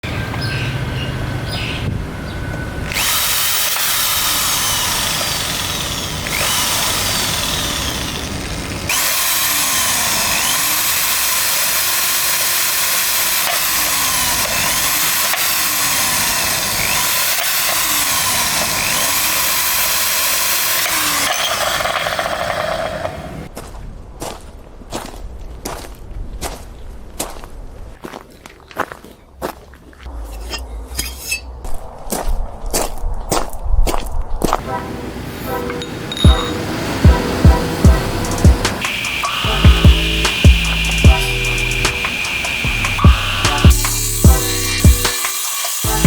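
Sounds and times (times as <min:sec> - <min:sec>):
electric drill grinding: 0:02.8 - 0:23.5, 0:35.5 - 0:46.0.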